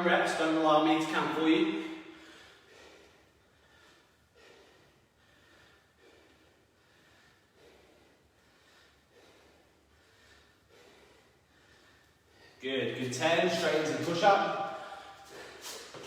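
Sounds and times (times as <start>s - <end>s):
man breathing rhythmically: 1.4s - 12.8s, 13.4s - 16.0s.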